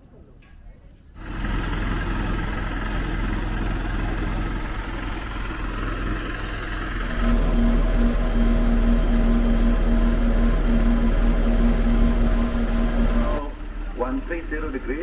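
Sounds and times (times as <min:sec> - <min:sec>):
turboprop engine and propeller drone: 0:01.2 - 0:15.0.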